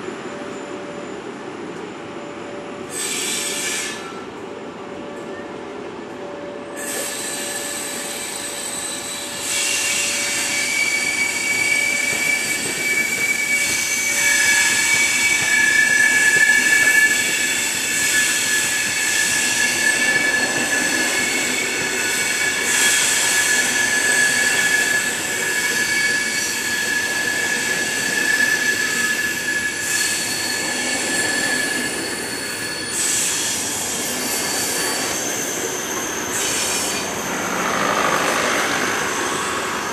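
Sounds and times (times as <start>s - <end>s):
train wheels squealing on rails: 0.0s - 39.9s
train rolling rumble: 30.6s - 39.9s.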